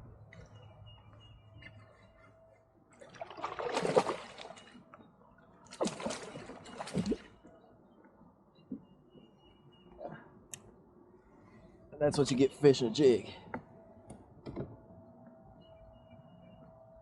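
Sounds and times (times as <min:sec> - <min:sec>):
water splashing and sloshing: 0:01.5 - 0:07.6.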